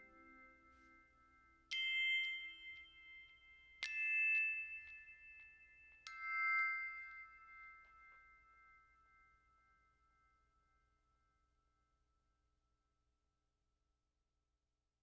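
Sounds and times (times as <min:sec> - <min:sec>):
bell-like mallet chimes: 0:00.0 - 0:10.7.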